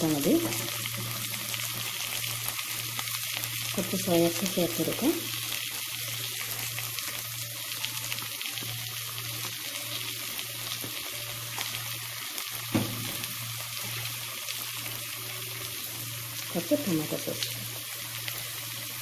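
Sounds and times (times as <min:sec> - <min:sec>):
vegetables sizzling in a wok: 0:00.0 - 0:19.0
sharp knock: 0:12.7 - 0:13.2.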